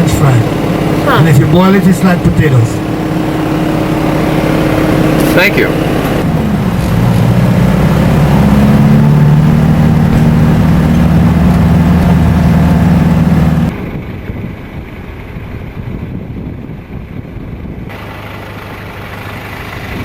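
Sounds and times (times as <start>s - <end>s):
low rough rumble: 0.0s - 20.0s
vehicle engine running under load: 0.0s - 20.0s.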